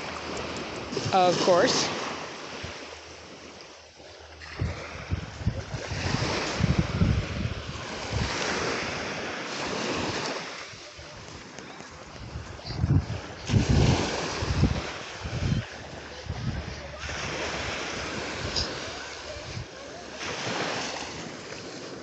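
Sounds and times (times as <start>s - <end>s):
small waves on a beach: 0.0s - 22.0s
wind buffeting microphone: 4.2s - 19.8s.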